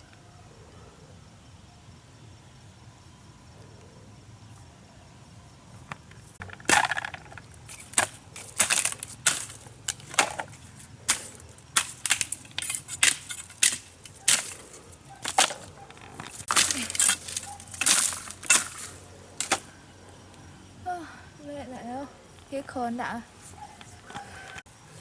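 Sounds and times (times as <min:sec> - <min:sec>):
sharp cracking and crunching impacts: 0:05.9 - 0:20.2.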